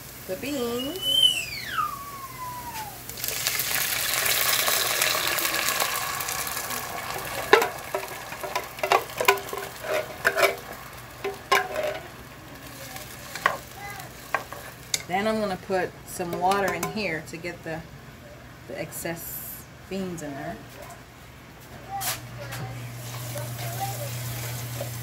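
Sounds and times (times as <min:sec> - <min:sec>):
beans sizzling in hot oil: 0:00.0 - 0:17.0, 0:22.9 - 0:25.0
clicks and knocks against a pot: 0:04.3 - 0:12.2, 0:13.0 - 0:15.1, 0:16.3 - 0:17.0.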